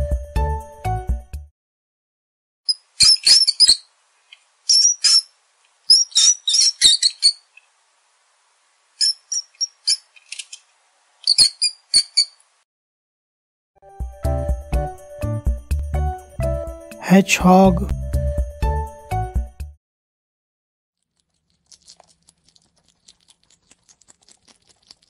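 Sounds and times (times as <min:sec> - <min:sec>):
mice squeaking: 0:02.7 - 0:03.9, 0:04.7 - 0:05.3, 0:05.9 - 0:07.6, 0:09.0 - 0:10.6, 0:11.2 - 0:12.4.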